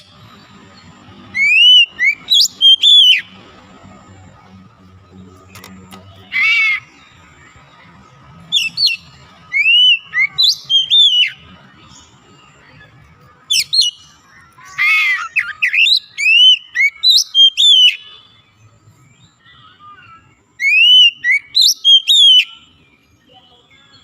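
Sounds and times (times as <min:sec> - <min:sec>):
bird singing whistled phrases: 0:01.3 - 0:03.4, 0:08.5 - 0:11.4, 0:13.5 - 0:18.3, 0:19.4 - 0:22.8.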